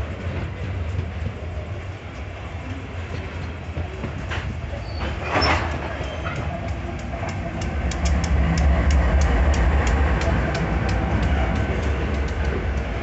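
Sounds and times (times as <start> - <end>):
diesel locomotive engine rumble: 0.0 - 13.0
freight wagons rolling on rails: 0.0 - 13.0
wheel clicks on track: 5.4 - 13.0.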